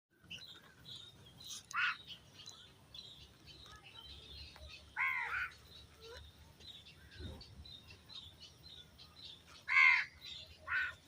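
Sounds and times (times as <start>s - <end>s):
birds chirping: 0.1s - 11.0s
loud bird call: 1.5s - 2.2s, 4.9s - 6.2s, 9.6s - 11.0s.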